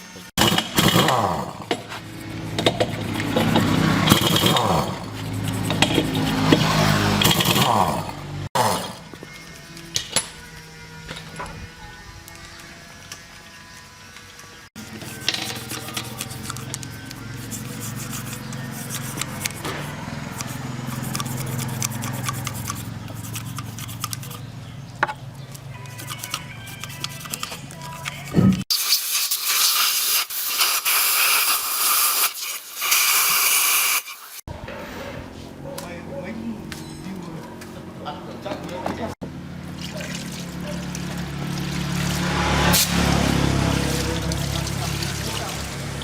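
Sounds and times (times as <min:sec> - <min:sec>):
rubbing and scraping parts: 0:00.4 - 0:07.8, 0:14.8 - 0:28.7
tractor engine running: 0:00.4 - 0:08.5, 0:14.8 - 0:28.6.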